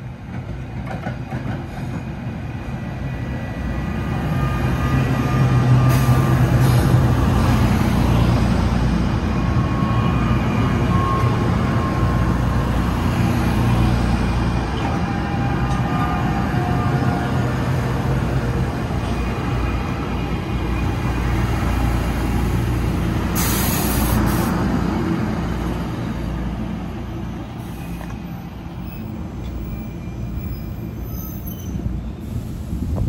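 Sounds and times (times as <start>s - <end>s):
train wheels rumbling on rail: 0.0s - 33.0s
air brake hiss: 5.8s - 7.0s, 23.3s - 24.6s, 27.6s - 28.2s
faint wheel squeals: 27.6s - 32.6s.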